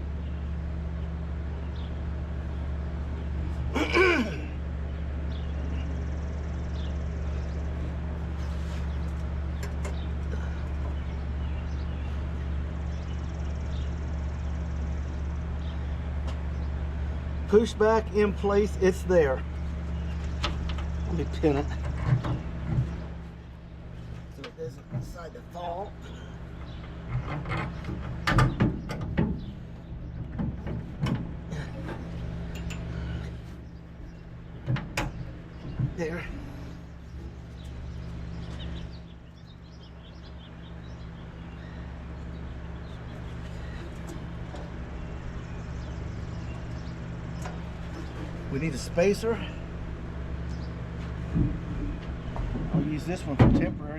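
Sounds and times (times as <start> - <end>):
low machine hum: 0.0 - 53.9
metal knocks and clanks: 21.6 - 23.2, 26.6 - 33.0, 34.5 - 36.5, 51.0 - 53.9.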